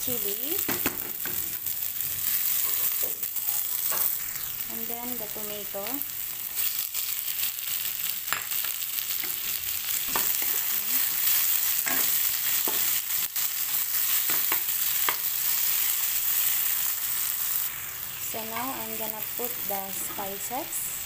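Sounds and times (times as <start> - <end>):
vegetables sizzling in oil: 0.0 - 21.0.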